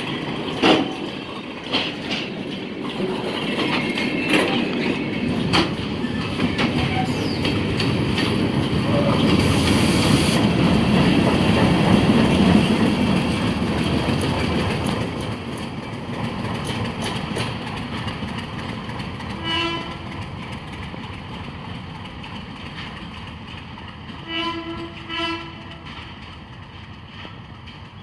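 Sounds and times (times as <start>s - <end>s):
diesel train rumbling and clattering: 0.0s - 28.0s
locomotive horn blasts: 19.4s - 20.1s, 24.2s - 25.9s.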